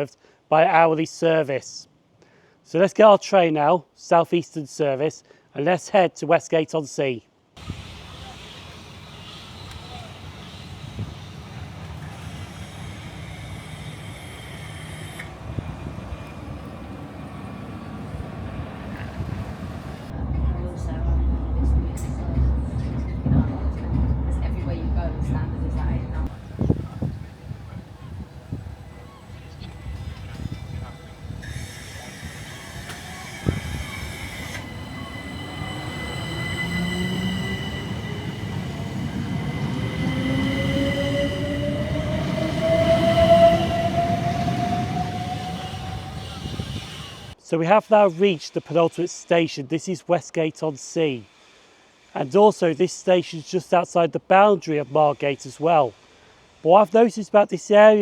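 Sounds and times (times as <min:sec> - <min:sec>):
high hiss: 0:07.6 - 0:15.4, 0:26.3 - 0:40.7
electric train rumble: 0:07.6 - 0:47.4.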